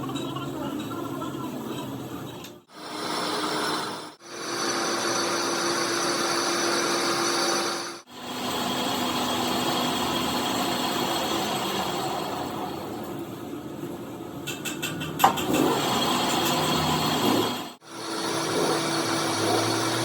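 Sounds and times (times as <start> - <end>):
power tool running: 2.7 - 12.6, 15.4 - 20.0.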